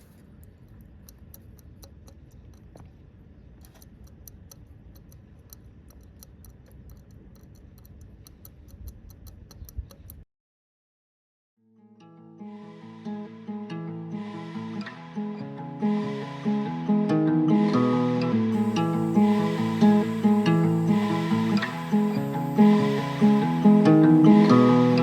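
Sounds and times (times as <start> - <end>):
fast faint ticking: 0.0 - 10.2.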